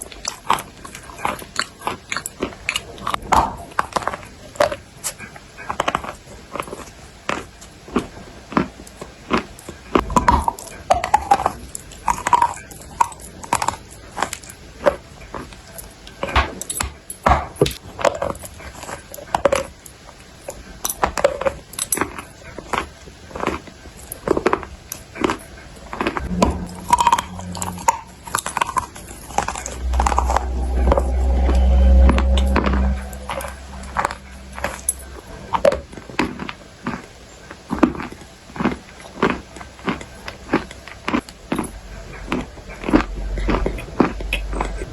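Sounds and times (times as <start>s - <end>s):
loud low hum: 26.1s - 36.2s.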